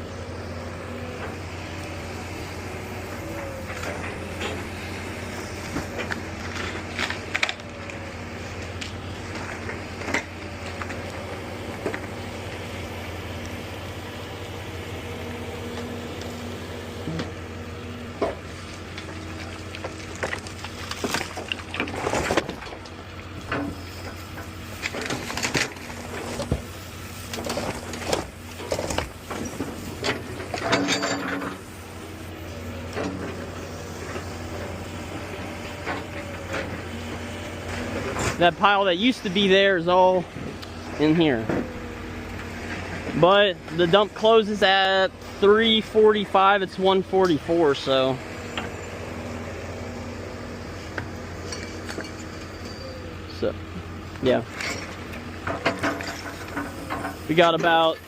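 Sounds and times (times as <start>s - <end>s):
heavy machine engine running: 0.0s - 58.0s
demolition debris crashing: 0.4s - 15.2s, 17.3s - 48.6s, 53.2s - 58.0s.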